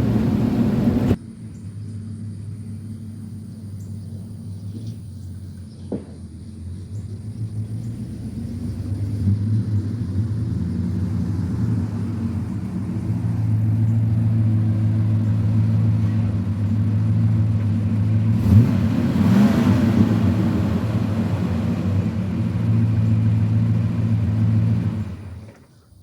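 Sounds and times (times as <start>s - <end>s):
pickup truck engine running: 0.0s - 25.6s.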